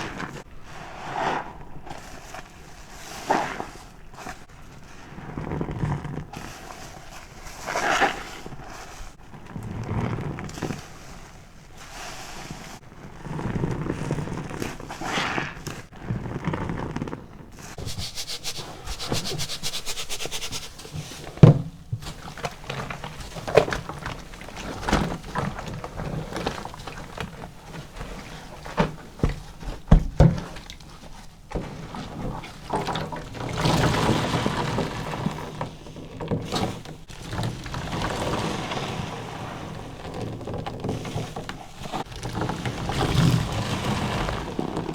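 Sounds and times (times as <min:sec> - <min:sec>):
soapy sponge squelching: 0:17.6 - 0:44.9.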